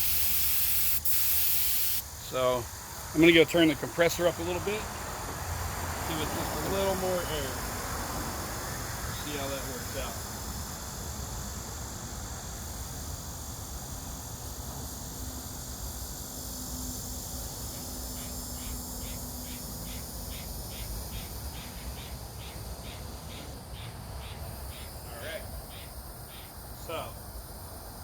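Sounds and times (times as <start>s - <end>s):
insect chirping: 0.0s - 28.0s
low rumble and hiss: 2.0s - 20.8s.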